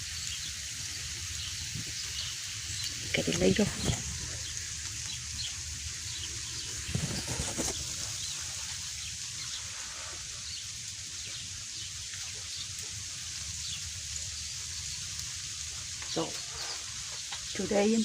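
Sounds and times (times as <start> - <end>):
freezing rain hissing and dripping: 0.0 - 18.0.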